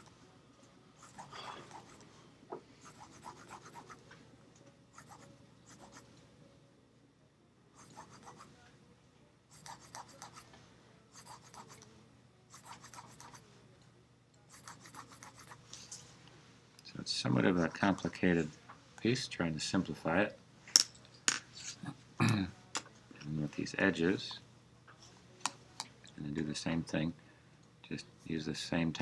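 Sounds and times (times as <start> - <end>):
pencil scratching on paper: 1.0 - 2.0, 2.8 - 4.0, 4.9 - 6.1, 7.8 - 8.5, 9.5 - 10.5, 11.2 - 11.8, 12.5 - 13.4, 14.5 - 15.6.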